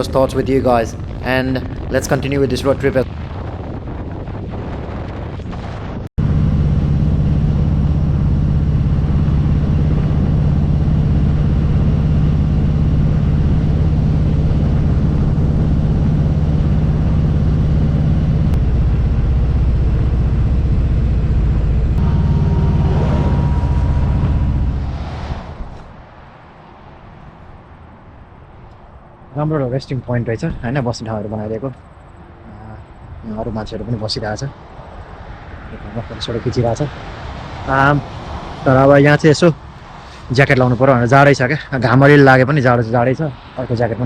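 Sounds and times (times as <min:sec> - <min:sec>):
wind noise: 0:00.0 - 0:44.0
motorcycle engine running: 0:06.2 - 0:25.2.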